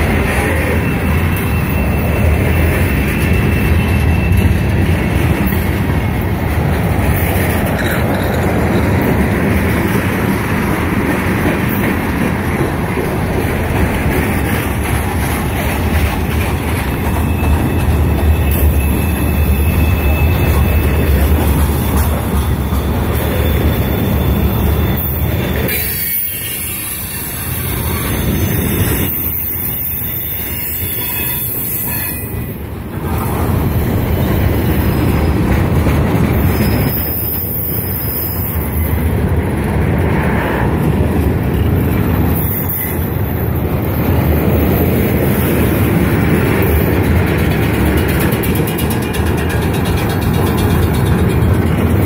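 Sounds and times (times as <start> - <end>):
high wheel squeals: 0.0 - 6.2, 16.6 - 32.7, 33.7 - 35.4, 36.3 - 39.1, 42.2 - 43.6
freight train wheels rumbling: 0.0 - 52.0.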